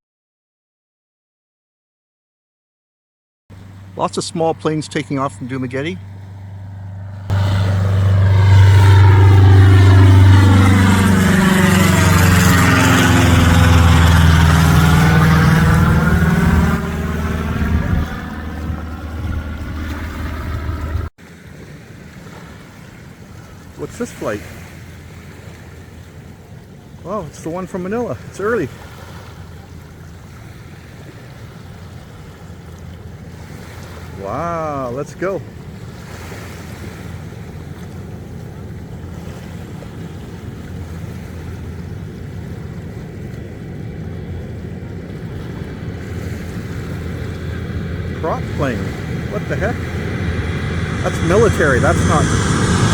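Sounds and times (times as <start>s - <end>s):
engine drone: 3.5s - 21.5s, 23.6s - 52.9s
wind: 3.5s - 52.9s
surf: 3.6s - 52.9s
wind on microphone: 7.3s - 23.6s.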